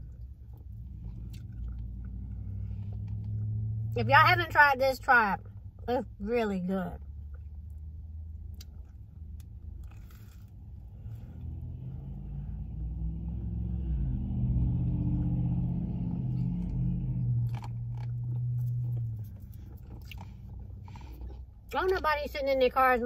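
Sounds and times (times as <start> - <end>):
car engine humming: 0.0 - 23.0
low steady rumble: 0.0 - 23.0
sandwich eating crackles: 7.3 - 11.4, 17.4 - 21.7.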